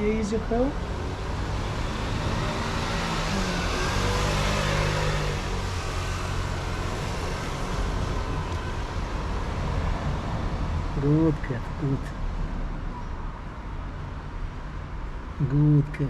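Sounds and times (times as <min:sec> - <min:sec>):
vehicle engine passing: 0:00.0 - 0:09.3
low hum of traffic: 0:00.0 - 0:16.0.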